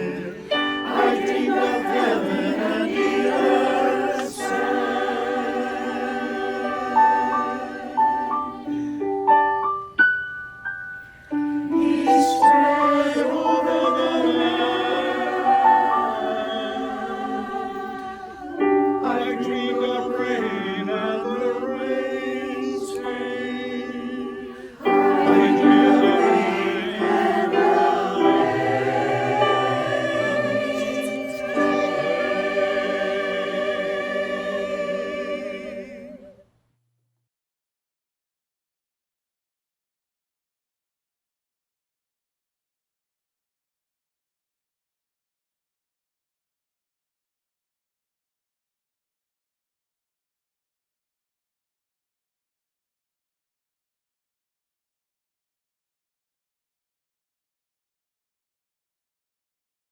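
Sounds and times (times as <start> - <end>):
choir singing in harmony: 0.0 - 9.6, 11.4 - 36.5.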